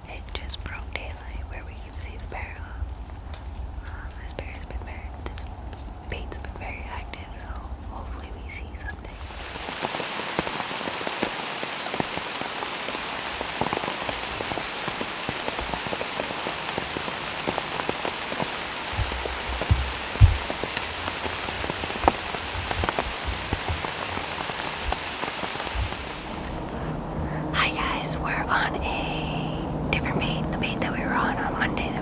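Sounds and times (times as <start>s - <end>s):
rain pattering on leaves: 0.1s - 32.0s
low knocks: 18.9s - 25.1s.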